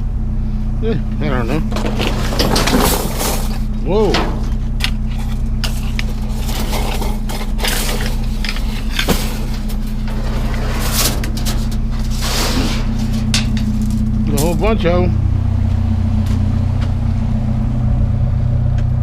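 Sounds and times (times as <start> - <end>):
low engine hum: 0.0 - 19.0
clinks and knocks of objects: 1.6 - 12.2, 12.8 - 14.8.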